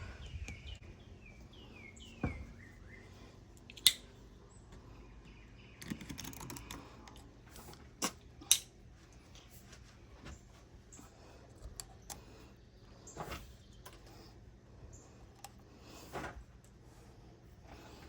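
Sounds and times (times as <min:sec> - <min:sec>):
birds chirping: 0:00.0 - 0:07.0.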